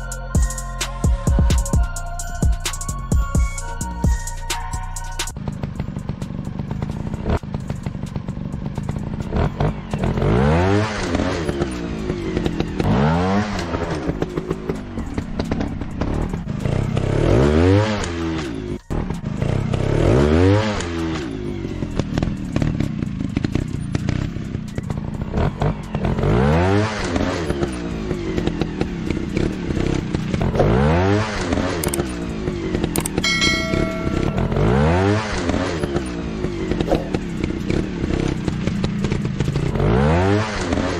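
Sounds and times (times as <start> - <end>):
dirt bike engine revving: 5.4 - 40.9
electronic tone: 33.2 - 35.7.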